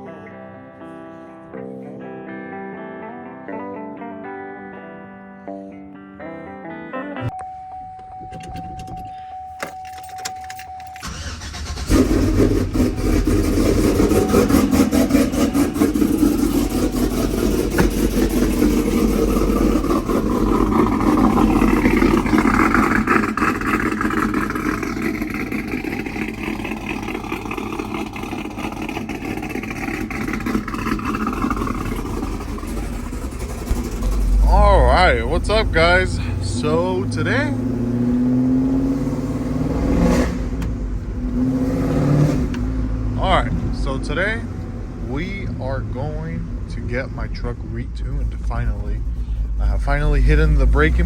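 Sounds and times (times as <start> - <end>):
pickup truck engine idling: 11.0 - 38.1, 42.9 - 51.0.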